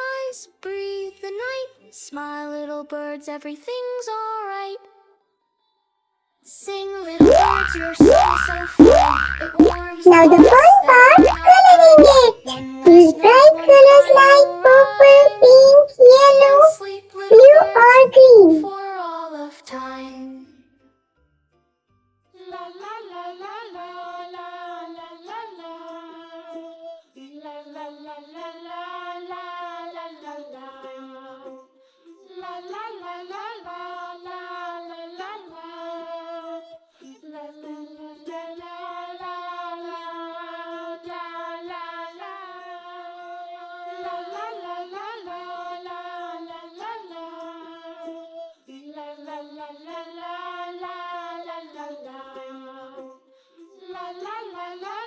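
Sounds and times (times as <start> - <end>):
child-like voice singing: 7.2 - 18.8.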